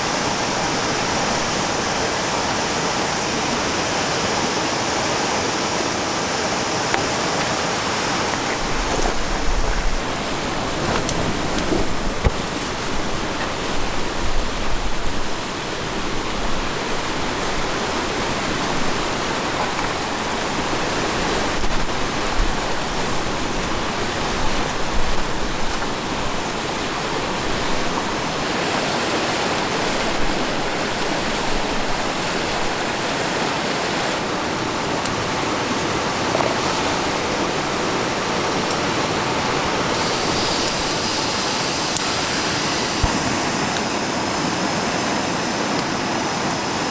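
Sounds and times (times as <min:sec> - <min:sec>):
river water rushing: 0:00.0 - 0:46.9
wind: 0:00.0 - 0:46.9
wind buffeting microphone: 0:07.2 - 0:28.5.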